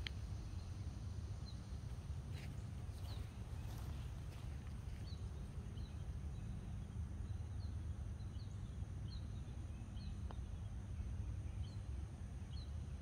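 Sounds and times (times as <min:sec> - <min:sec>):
bird chirping: 0:02.4 - 0:10.6.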